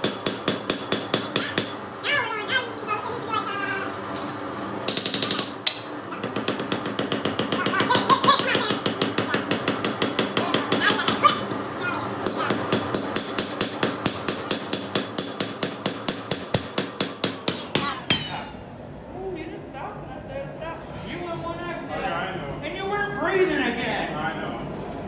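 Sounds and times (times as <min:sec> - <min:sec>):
hammer striking steel on anvil: 0:00.0 - 0:01.8, 0:12.7 - 0:18.7.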